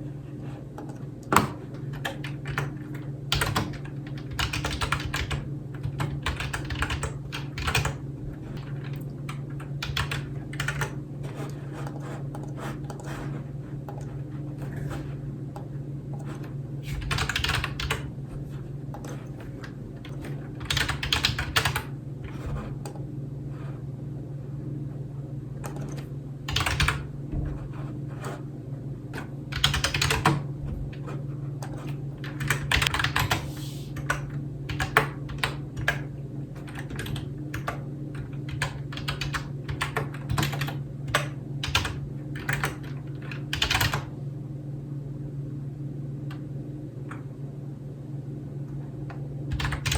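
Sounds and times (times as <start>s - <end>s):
steady low hum: 0.0s - 49.9s
computer keyboard typing: 0.8s - 15.1s, 16.1s - 23.0s, 25.6s - 27.1s, 29.2s - 44.1s, 49.5s - 49.9s.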